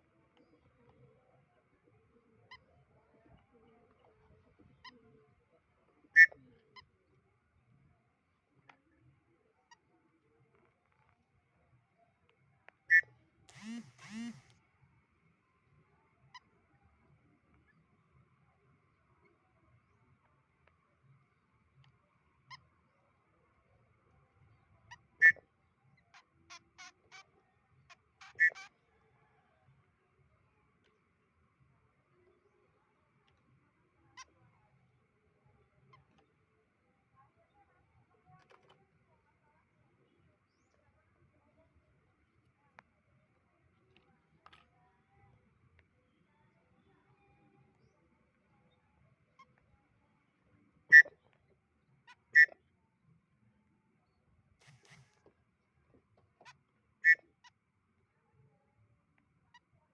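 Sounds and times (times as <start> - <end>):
bird call notes: 12.9 - 14.5, 28.2 - 28.7, 52.4 - 52.6.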